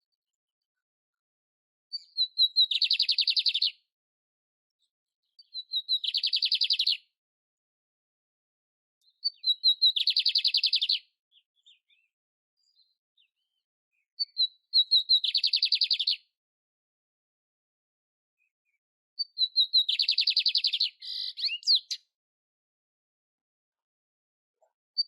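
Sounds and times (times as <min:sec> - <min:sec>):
bird singing high notes and trill: 0:19.2 - 0:22.0.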